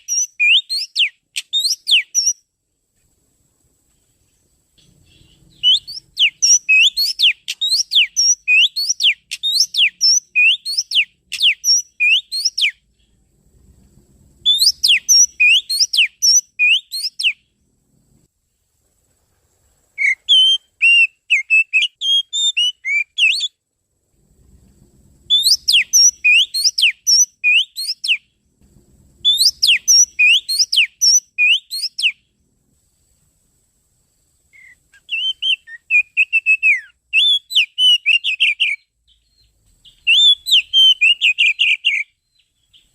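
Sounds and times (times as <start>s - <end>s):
bird singing whistled notes: 0.0s - 2.5s, 4.2s - 13.2s, 14.4s - 17.6s, 20.0s - 23.6s, 25.2s - 28.4s, 29.2s - 32.3s, 34.5s - 42.9s.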